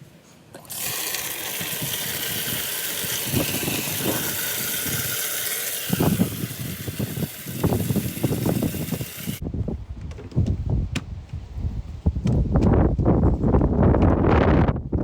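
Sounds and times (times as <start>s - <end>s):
water filling bucket: 0.6s - 9.4s.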